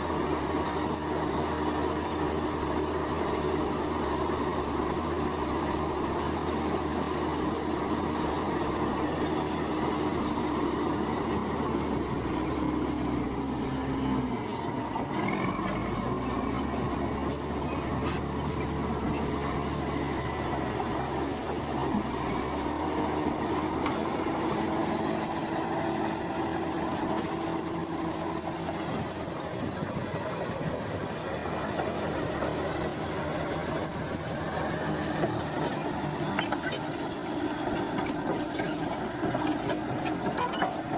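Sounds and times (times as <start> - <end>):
bulldozer diesel engine: 0.0 - 40.9
steel tracks squealing and clattering: 0.0 - 40.9.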